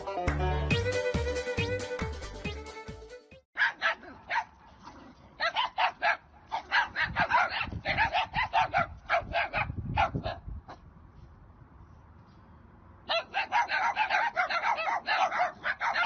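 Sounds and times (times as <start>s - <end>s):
dog barking: 3.6s - 10.8s, 13.1s - 16.0s.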